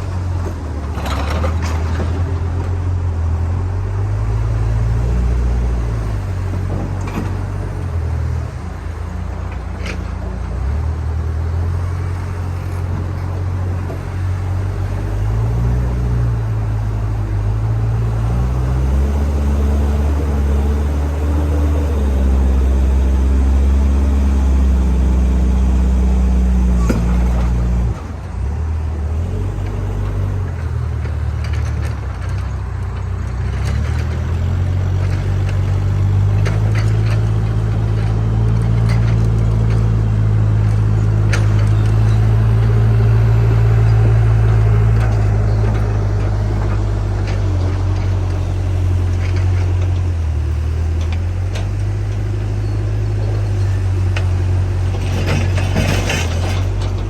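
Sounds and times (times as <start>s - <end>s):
diesel engine running: 0.0s - 57.0s
metal clanks and knocks: 53.3s - 57.0s.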